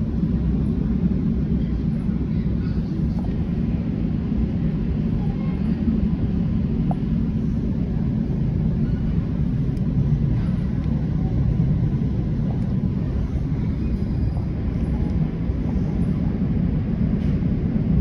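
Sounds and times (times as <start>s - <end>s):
train rumbling: 0.0s - 18.0s.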